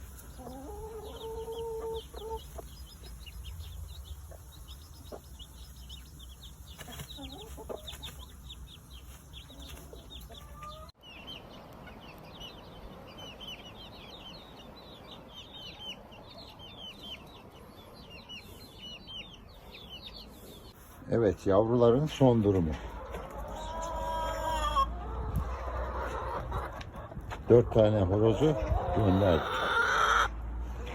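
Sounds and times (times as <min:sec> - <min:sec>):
chicks peeping: 0:00.0 - 0:30.9.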